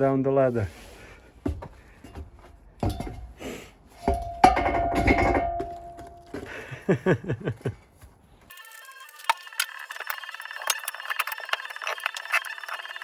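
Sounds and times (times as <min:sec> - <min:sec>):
tire knocking down ladder: 0:04.0 - 0:06.5.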